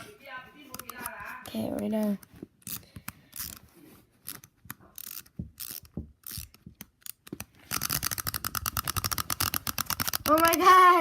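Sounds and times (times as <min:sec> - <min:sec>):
wind-up key ratchet clicks: 0:02.6 - 0:03.6, 0:04.2 - 0:10.7
clockwork toy clattering: 0:05.0 - 0:11.0.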